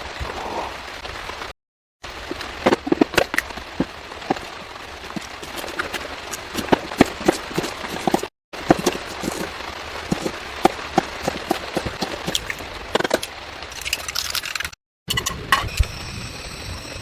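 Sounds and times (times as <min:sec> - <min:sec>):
crackles and taps: 0:02.0 - 0:14.4.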